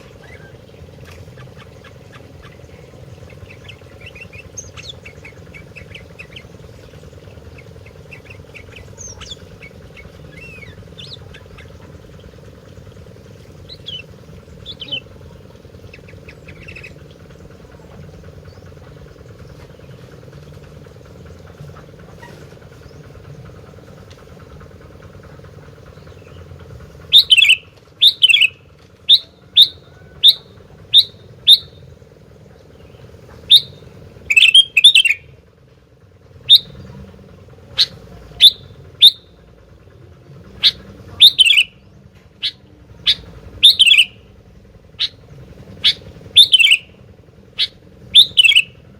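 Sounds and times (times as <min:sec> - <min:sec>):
steady low hum: 0:00.0 - 0:48.9
bird calling high notes: 0:27.1 - 0:31.9, 0:33.4 - 0:35.4, 0:36.4 - 0:36.8, 0:37.7 - 0:39.5, 0:40.6 - 0:41.8, 0:42.4 - 0:44.3, 0:44.9 - 0:47.0, 0:47.6 - 0:48.9.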